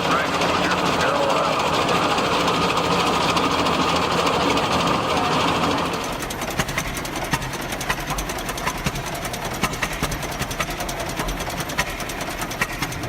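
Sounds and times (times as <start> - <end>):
engine knocks: 0.0 - 13.0
tractor engine clattering: 0.0 - 13.0.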